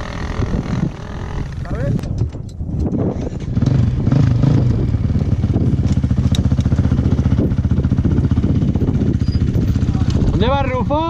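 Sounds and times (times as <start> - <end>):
off-road motorcycle engine idling: 3.2 - 11.0.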